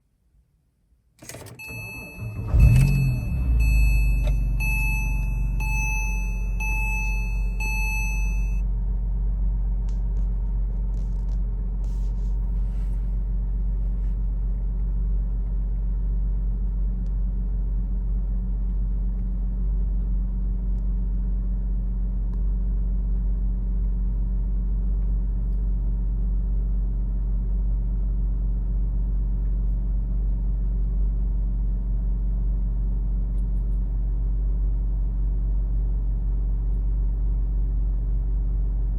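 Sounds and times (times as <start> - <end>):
car warning chime beeping: 1.5 - 8.6
car engine idling: 1.6 - 19.6.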